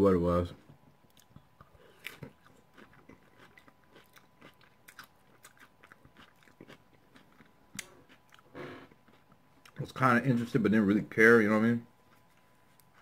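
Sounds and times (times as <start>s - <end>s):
crunchy chewing: 1.0s - 9.8s.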